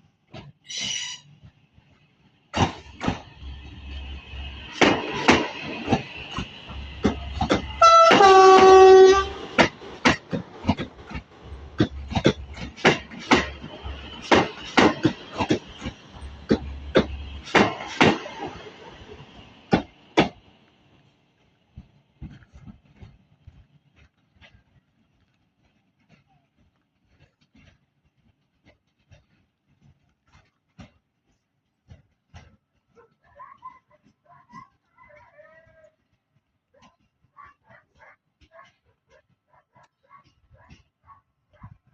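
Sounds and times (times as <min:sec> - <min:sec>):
train wheels clacking over rail joints: 0:02.4 - 0:33.4
train horn blast: 0:07.7 - 0:09.6.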